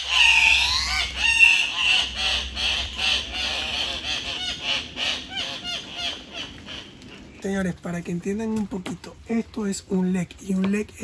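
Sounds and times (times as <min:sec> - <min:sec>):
long wavering bird call: 0:00.0 - 0:06.2
birds squawking in chorus: 0:00.0 - 0:07.4.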